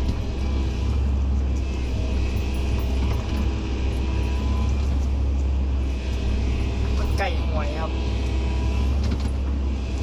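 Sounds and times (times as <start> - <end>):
diesel machinery engine rumble: 0.0 - 10.0.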